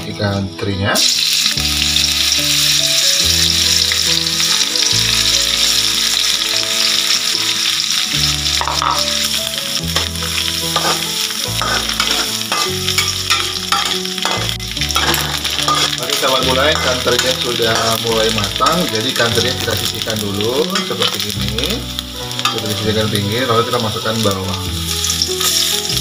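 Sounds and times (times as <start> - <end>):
fish frying in hot oil: 1.0 - 26.0
spatula scraping and tapping wok: 8.6 - 9.2, 10.0 - 18.7.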